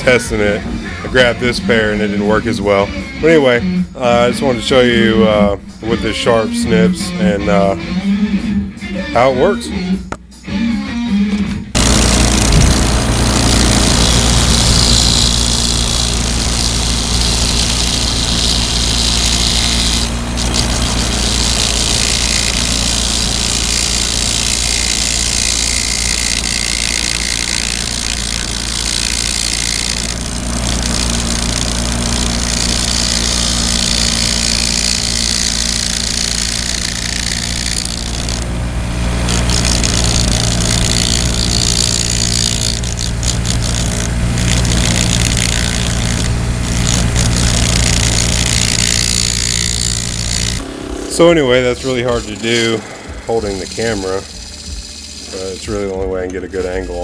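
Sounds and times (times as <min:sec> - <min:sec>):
bench grinder motor running: 0:00.0 - 0:08.1, 0:11.7 - 0:57.0
metal snips scraping spinning metal: 0:11.8 - 0:57.0.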